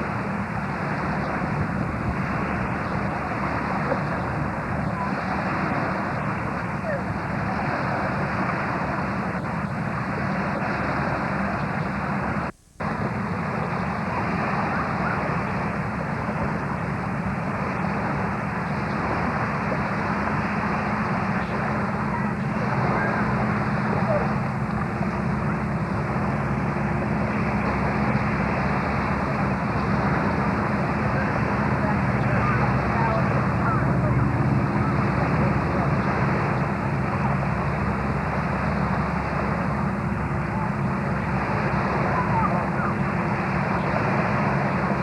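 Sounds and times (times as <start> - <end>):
low rumbling noise: 0.0 - 45.0
steady engine drone: 0.0 - 45.0.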